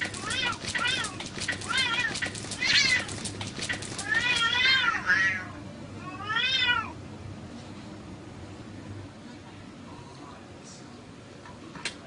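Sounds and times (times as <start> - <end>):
sharp clicks: 0.0 - 4.5
cats yowling: 0.0 - 7.0.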